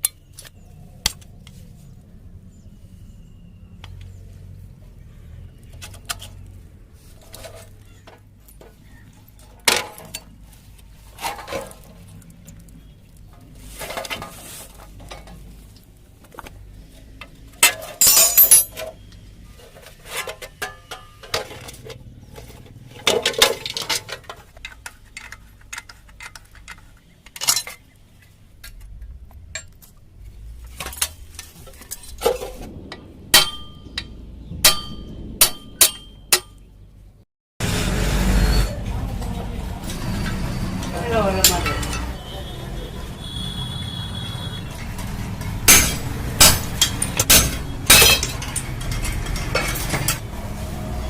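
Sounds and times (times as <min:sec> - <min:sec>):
metal tools clinking and scraping: 0:05.8 - 0:12.7, 0:13.3 - 0:15.9, 0:17.1 - 0:34.1, 0:38.5 - 0:42.3, 0:44.7 - 0:50.3.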